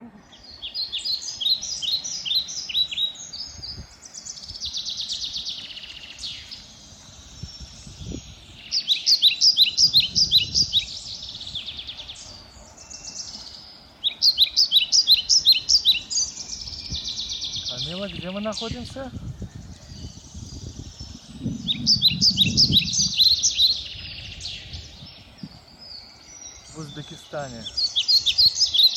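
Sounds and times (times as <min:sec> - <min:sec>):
buzzy bird trill: 0:00.0 - 0:28.9
songbirds chirping: 0:00.0 - 0:28.9.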